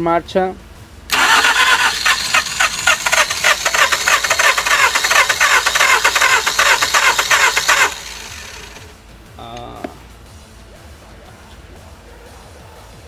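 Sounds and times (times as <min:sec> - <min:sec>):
starter motor cranking engine: 0:01.1 - 0:09.0.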